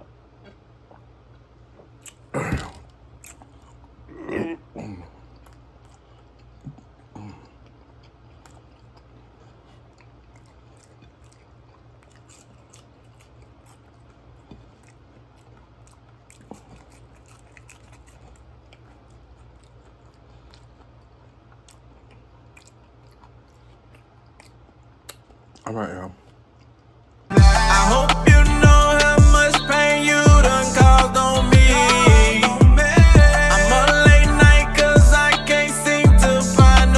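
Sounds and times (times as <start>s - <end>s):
steady low hum: 0.0s - 36.9s
man chewing: 0.2s - 36.9s
wet mouth clicks: 0.4s - 3.9s
loud throaty sounds: 2.2s - 2.9s, 27.3s - 36.9s.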